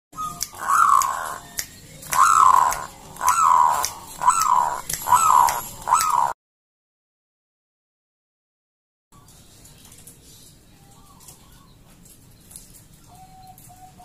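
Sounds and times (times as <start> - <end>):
dove cooing: 0.2 - 1.5, 2.1 - 6.4.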